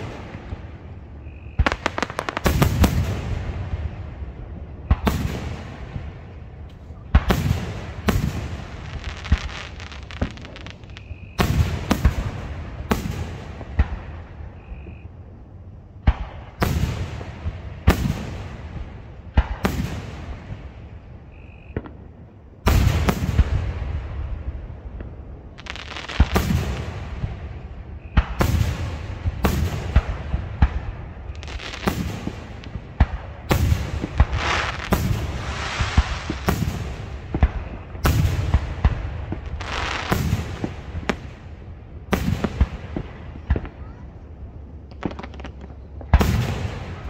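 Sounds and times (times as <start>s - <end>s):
firework bursts with rumble: 0.0s - 15.1s, 16.0s - 47.0s
crackling firework pops: 1.6s - 3.3s, 4.8s - 14.1s, 19.3s - 20.3s, 21.7s - 22.0s, 24.9s - 27.4s, 28.0s - 41.4s, 44.9s - 47.0s.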